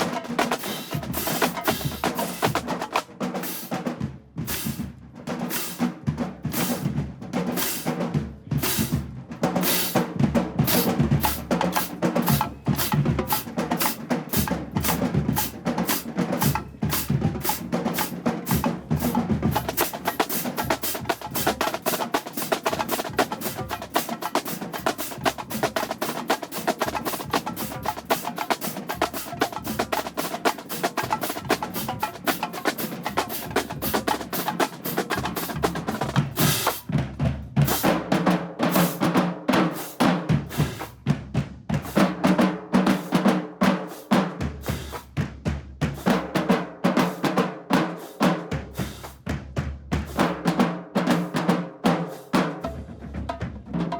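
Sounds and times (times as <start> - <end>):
snare drums: 0.0 - 53.9
bass drums: 10.2 - 13.6, 16.4 - 24.0, 35.0 - 38.1.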